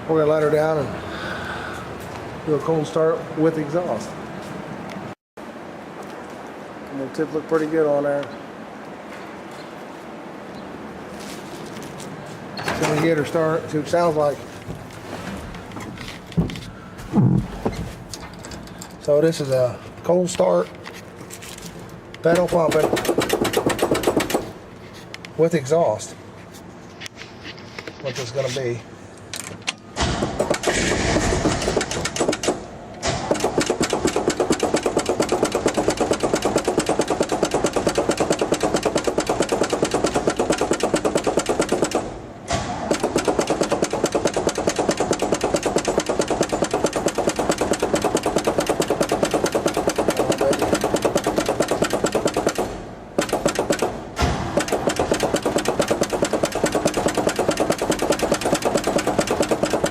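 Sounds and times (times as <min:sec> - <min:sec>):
engine running with even pulsing: 0:22.3 - 0:24.5, 0:30.0 - 0:59.9
pickup engine cold start: 0:30.4 - 0:32.4.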